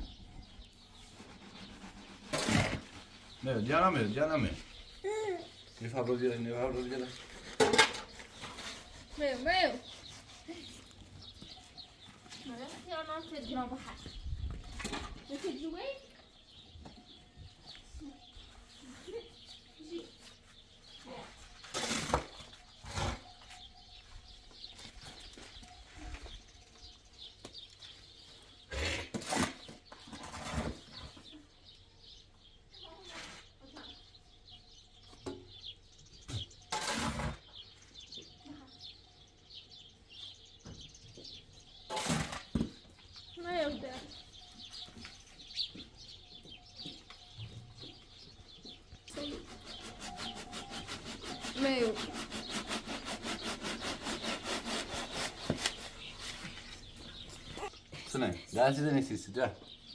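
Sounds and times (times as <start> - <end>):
birds chirping: 0.0 - 59.9
fast even scraping: 49.2 - 57.6.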